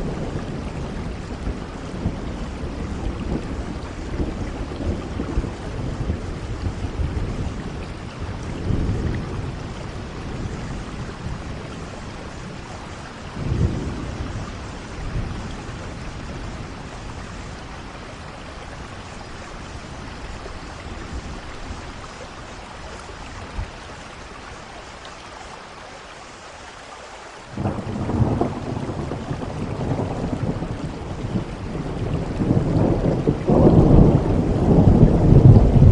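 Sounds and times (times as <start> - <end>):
thunder rumbling: 0.0 - 24.2, 27.5 - 35.9
steady rain: 0.0 - 35.9.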